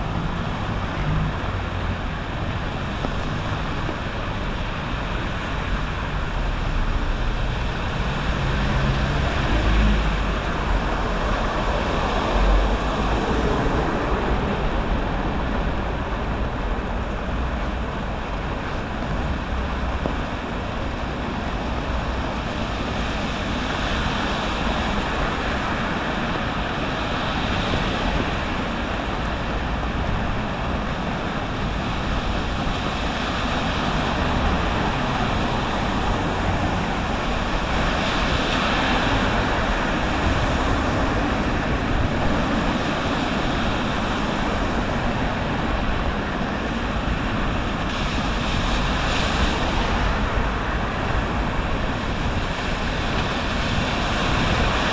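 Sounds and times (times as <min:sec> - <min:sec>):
waves washing onto beach: 0:00.0 - 0:54.9.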